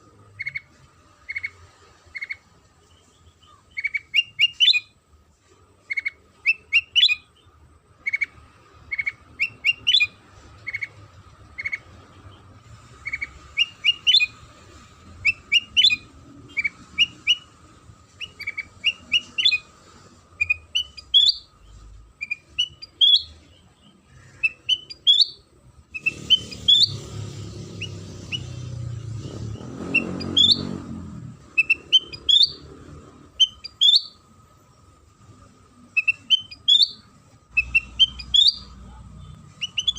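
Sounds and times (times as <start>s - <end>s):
bird chirped whistles: 3.7s - 5.0s, 5.9s - 7.3s, 8.9s - 11.0s, 13.0s - 14.4s, 15.2s - 17.6s, 18.2s - 19.7s, 20.4s - 23.4s, 24.2s - 30.8s, 31.4s - 32.7s, 33.3s - 34.3s, 35.9s - 38.8s, 39.5s - 39.9s.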